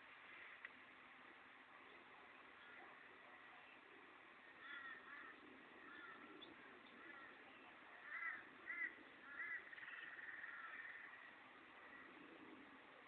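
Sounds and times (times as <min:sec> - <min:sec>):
steady background hiss: 0:00.0 - 0:13.0
crows cawing: 0:04.5 - 0:07.4, 0:08.0 - 0:12.2.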